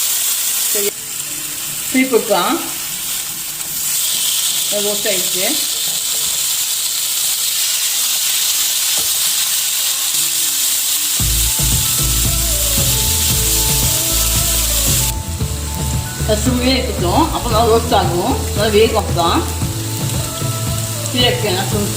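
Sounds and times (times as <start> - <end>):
chicken sizzling in a pan: 0.0 - 21.9
background music: 0.8 - 4.4, 11.2 - 21.9.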